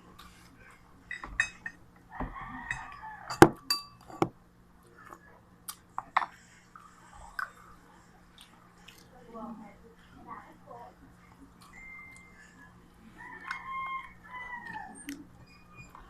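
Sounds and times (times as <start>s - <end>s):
spoon clinking on dishes: 1.1s - 1.8s, 2.7s - 4.3s.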